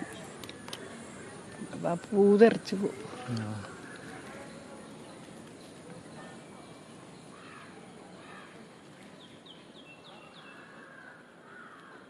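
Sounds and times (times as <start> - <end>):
birds drawn-out calls: 0.0 - 6.2
outdoor background noise: 0.0 - 12.0.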